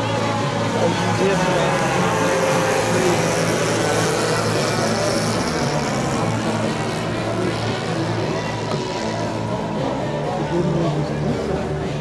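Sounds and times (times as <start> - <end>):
model airplane gas engine running: 0.0 - 10.1.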